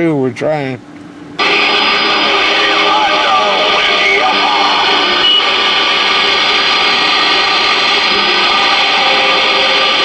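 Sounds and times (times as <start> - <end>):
garbled radio voices: 1.4 - 6.1
radio static: 1.4 - 10.0.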